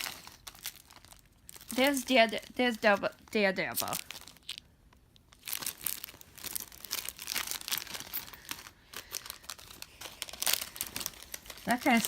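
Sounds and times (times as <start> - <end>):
plastic packaging crinkling and tearing: 0.0 - 12.0.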